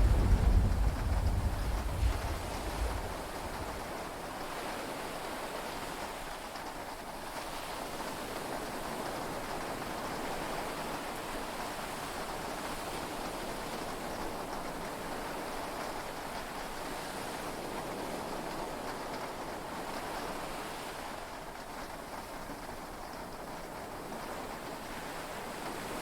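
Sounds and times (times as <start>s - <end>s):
low thunder rumble: 0.0s - 4.1s
sea waves: 0.0s - 4.1s
steady rain: 0.0s - 9.7s.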